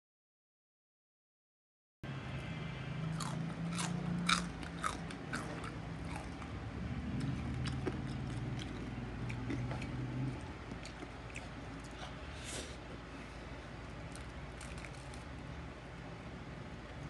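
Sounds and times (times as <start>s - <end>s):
crunching and chewing pork skin: 3.1s - 13.1s, 13.7s - 15.6s.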